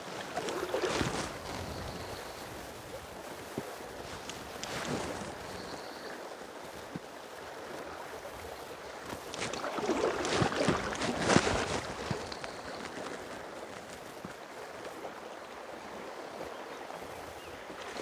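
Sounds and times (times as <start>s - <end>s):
water splashing: 0.0s - 2.4s, 9.2s - 13.4s
river water flowing: 0.0s - 18.0s.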